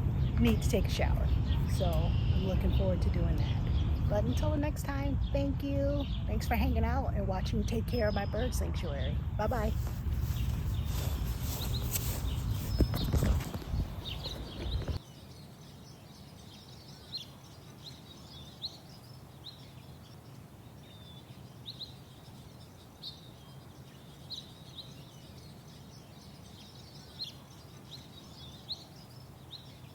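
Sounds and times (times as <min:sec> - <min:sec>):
songbirds chirping: 0:00.0 - 0:29.9
handling and rustling noise: 0:09.5 - 0:15.0.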